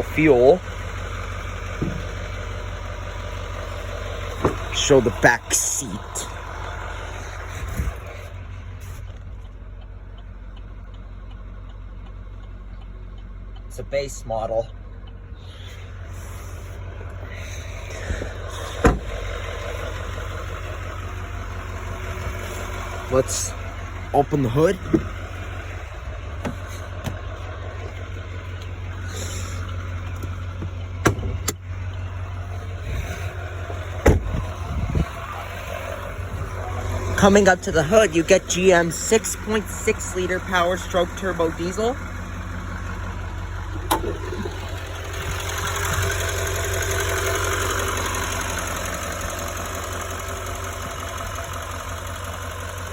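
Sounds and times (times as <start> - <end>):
diesel engine idling: 0.0 - 52.9
steady low rumble: 1.0 - 48.6
hood latch clicks and clunks: 1.7 - 2.2, 4.4 - 4.9, 18.7 - 19.3, 24.8 - 25.2, 26.4 - 27.2, 30.1 - 31.6, 34.0 - 34.6, 43.8 - 44.4
thump: 1.8 - 2.1, 18.8 - 19.2, 34.0 - 34.5.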